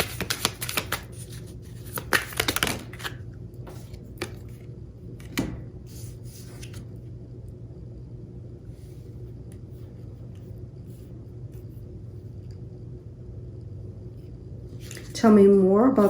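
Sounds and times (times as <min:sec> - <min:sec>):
cards being shuffled: 0:00.0 - 0:04.6, 0:05.2 - 0:06.9, 0:14.8 - 0:15.2
faint low hum: 0:00.0 - 0:16.0.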